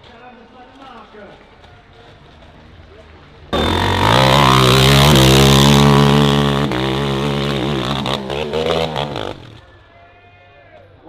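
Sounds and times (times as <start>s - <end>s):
dirt bike engine revving: 3.6s - 9.6s.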